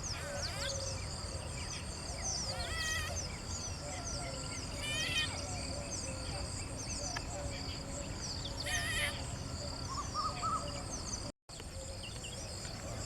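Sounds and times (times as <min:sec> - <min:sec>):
harsh wavering bird calls: 0:00.0 - 0:06.3, 0:08.5 - 0:10.9.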